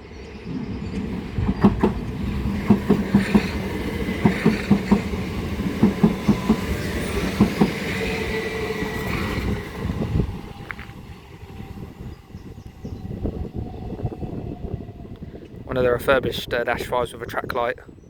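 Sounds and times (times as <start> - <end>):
train rumble: 0.0 - 16.9
train wheels clacking over rail joints: 1.0 - 11.1.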